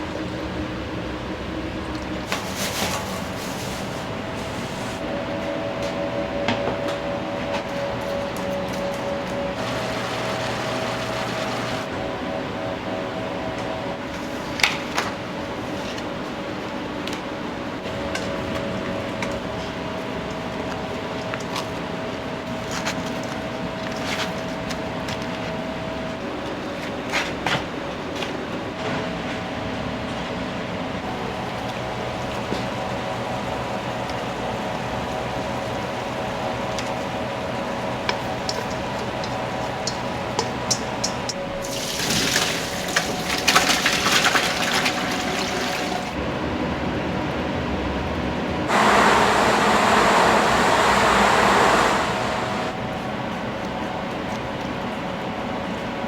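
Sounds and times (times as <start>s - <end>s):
machine hum: 3.7s - 12.0s, 48.7s - 53.0s
running water splashing: 41.4s - 46.2s.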